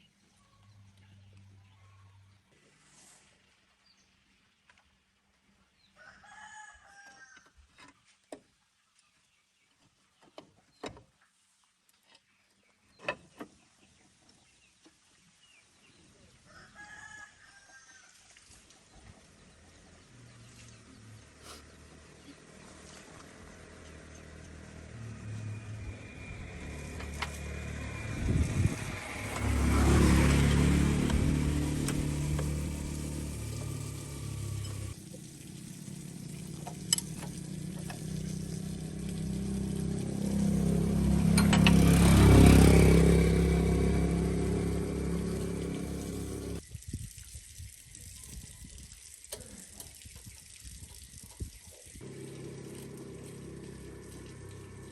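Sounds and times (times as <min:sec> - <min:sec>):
rooster crowing: 0:06.0 - 0:07.5, 0:16.5 - 0:18.1
tractor engine running: 0:23.0 - 0:46.6, 0:52.0 - 0:54.9.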